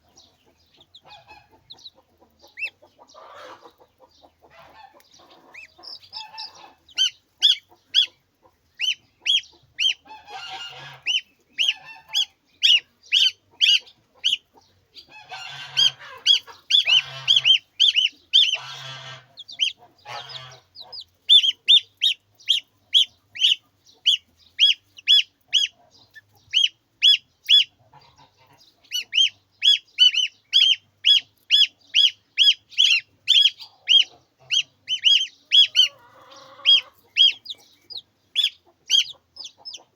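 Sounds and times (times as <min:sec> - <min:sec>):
harsh poultry calls: 0:00.0 - 0:39.9
poultry peeping: 0:00.0 - 0:39.9.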